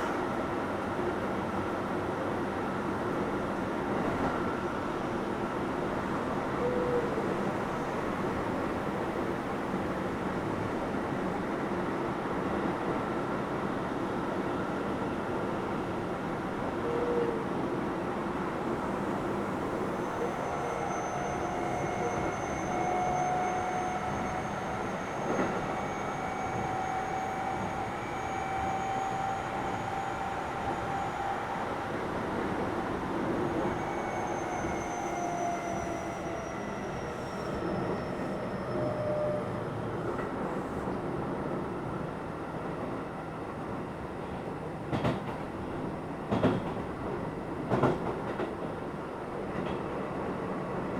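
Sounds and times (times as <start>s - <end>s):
train wheels rumbling on rails: 18.3s - 43.0s, 43.6s - 50.9s.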